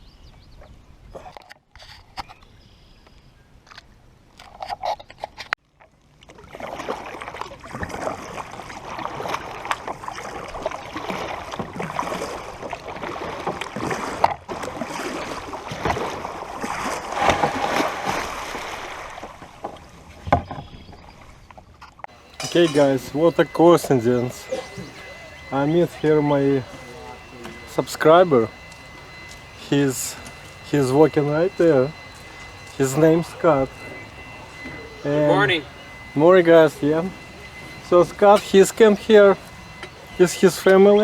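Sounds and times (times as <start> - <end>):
water splashing around a kayak: 5.8 - 20.6.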